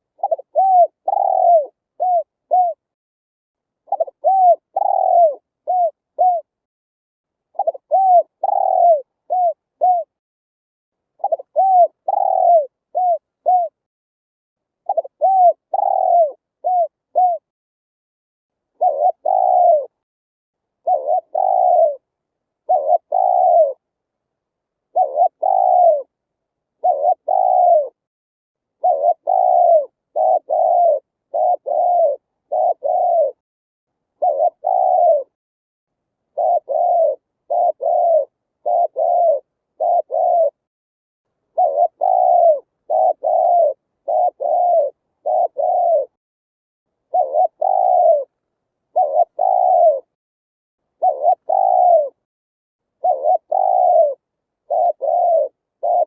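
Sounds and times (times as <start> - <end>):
dove cooing: 0.0 - 2.9, 3.9 - 6.6, 7.5 - 10.2, 11.2 - 13.8, 14.8 - 17.5, 18.8 - 20.0, 20.8 - 23.8, 24.9 - 26.1, 26.8 - 28.0, 28.8 - 33.4, 34.2 - 35.4, 36.3 - 40.7, 41.5 - 46.2, 47.1 - 50.2, 51.0 - 52.3, 53.0 - 56.0.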